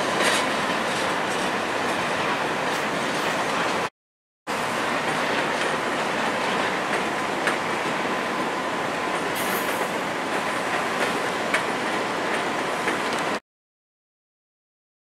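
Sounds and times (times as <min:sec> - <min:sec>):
train wheels rolling on rails: 0:00.0 - 0:03.9, 0:04.5 - 0:13.4
wheels clicking over rail joints: 0:00.0 - 0:03.9.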